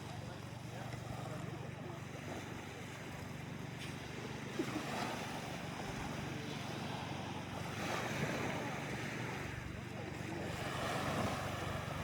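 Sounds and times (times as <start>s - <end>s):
low boat engine hum: 0.0s - 12.0s
sea wash: 0.0s - 12.0s.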